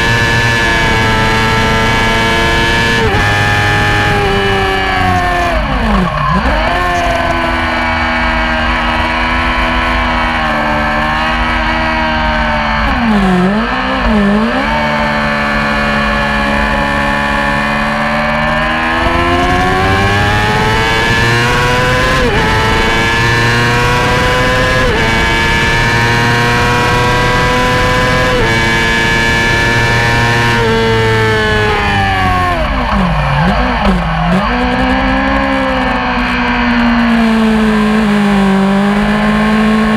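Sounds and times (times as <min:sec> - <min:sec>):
sport bike engine revving: 0:00.0 - 0:39.9.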